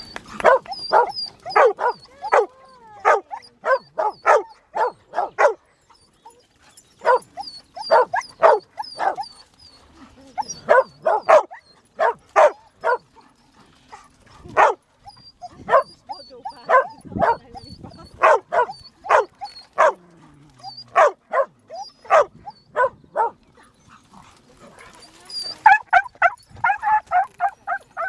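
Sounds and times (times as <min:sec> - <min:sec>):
dog barking excitedly: 0:00.4 - 0:05.6, 0:07.9 - 0:09.3, 0:10.6 - 0:13.1, 0:14.5 - 0:14.8, 0:16.5 - 0:17.5, 0:18.1 - 0:20.0, 0:20.9 - 0:23.4, 0:25.6 - 0:28.0.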